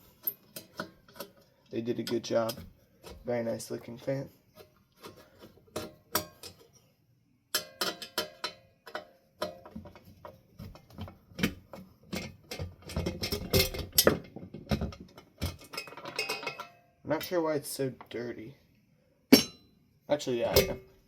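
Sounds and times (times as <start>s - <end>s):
metal parts clicking and clinking: 0.1s - 3.2s, 5.0s - 6.8s, 7.6s - 10.3s, 11.4s - 17.4s.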